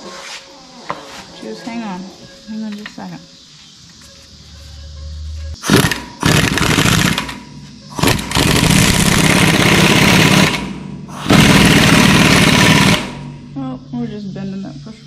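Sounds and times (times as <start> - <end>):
impact wrench hammering: 8.0 - 13.4.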